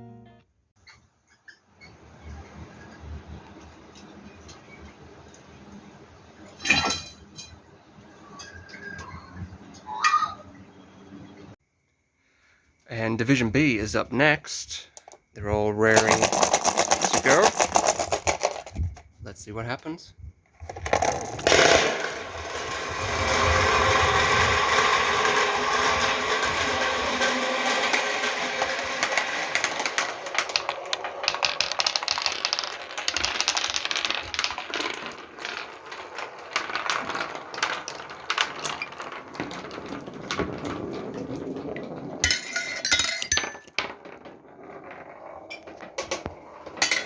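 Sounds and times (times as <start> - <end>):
marbles clattering on wooden run: 13.9 - 19.1, 20.6 - 47.0.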